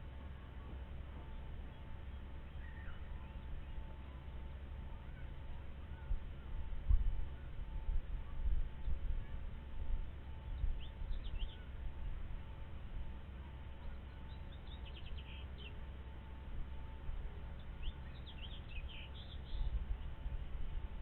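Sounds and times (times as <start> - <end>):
steady low rumble: 0.0 - 21.0
birds chirping: 0.4 - 6.4, 10.5 - 11.8, 13.6 - 20.3.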